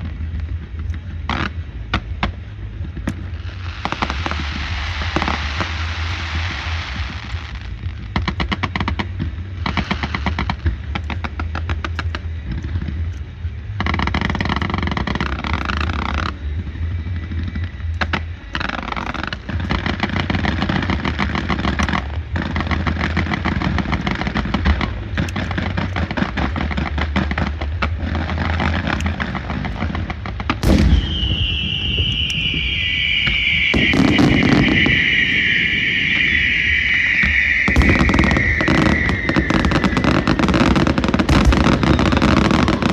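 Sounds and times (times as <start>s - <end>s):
firecrackers crackling: 0.0s - 42.9s
steady low hum: 0.0s - 42.9s
firework whistle: 3.5s - 7.8s, 28.3s - 42.9s
loud bang: 30.6s - 42.9s.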